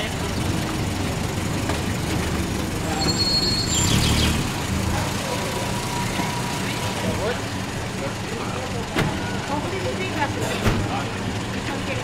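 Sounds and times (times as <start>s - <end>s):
car engine rumbling: 0.0s - 12.0s
short high-pitched squeak: 2.9s - 4.0s.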